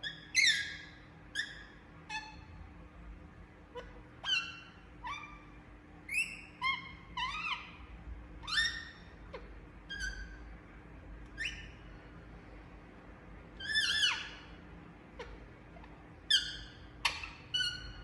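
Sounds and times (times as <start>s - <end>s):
parrot shrill calls: 0.0s - 2.5s, 3.8s - 5.5s, 6.1s - 7.8s, 8.4s - 9.1s, 11.4s - 11.8s, 13.6s - 14.6s, 16.3s - 18.0s.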